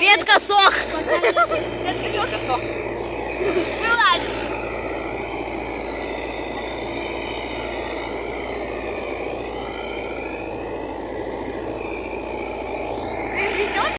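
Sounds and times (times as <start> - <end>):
vehicle engine droning: 0.0 - 13.9.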